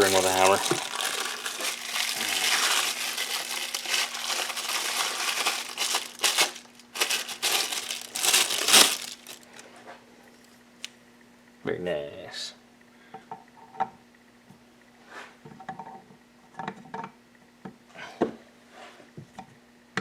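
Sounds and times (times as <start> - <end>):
crinkling rustling handling noise: 0.0 - 9.8.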